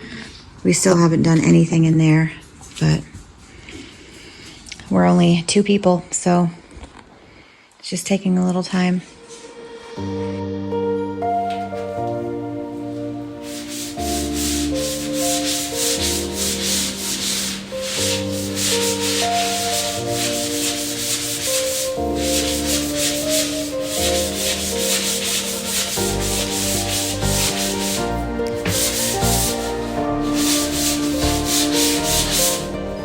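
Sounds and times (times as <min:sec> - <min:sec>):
background music with held chords: 0:09.6 - 0:33.0
rapidly pulsing rasping noise: 0:13.8 - 0:33.0.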